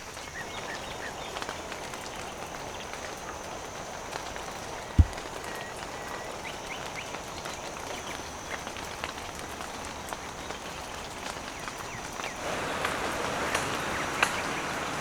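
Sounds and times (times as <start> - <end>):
rain falling: 0.0 - 15.0
drops ticking: 5.0 - 5.4.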